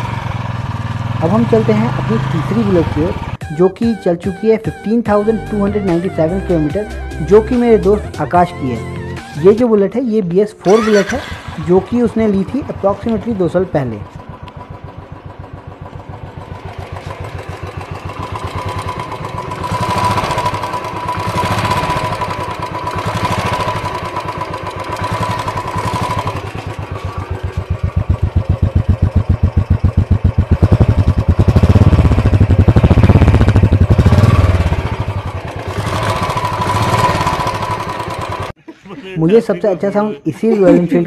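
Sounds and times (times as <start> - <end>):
motorcycle engine revving: 0.0 - 3.4, 10.6 - 38.6.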